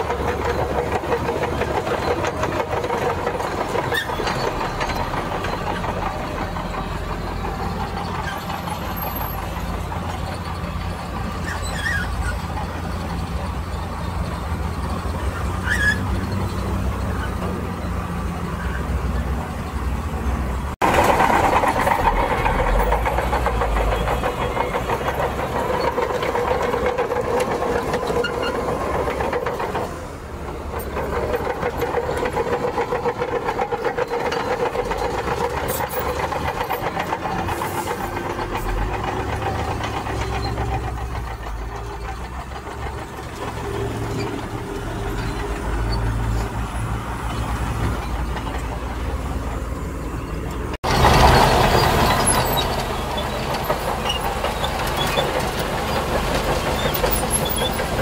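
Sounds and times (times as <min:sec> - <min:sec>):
heavy diesel machinery working: 0:00.0 - 0:58.0
machine engine drone: 0:20.8 - 0:58.0.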